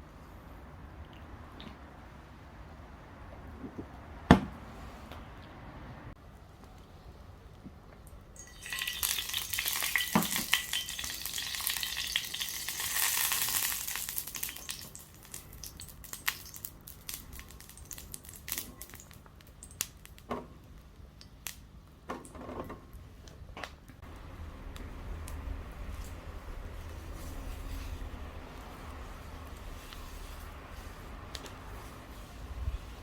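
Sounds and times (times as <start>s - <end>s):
food sizzling on a skillet: 8.4s - 19.1s.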